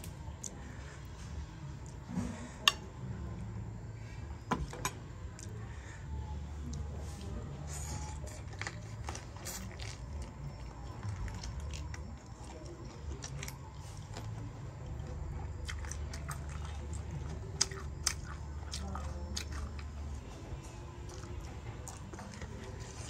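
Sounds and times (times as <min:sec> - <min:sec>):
steady low hum: 0:00.0 - 0:23.0
person chewing: 0:07.7 - 0:23.0.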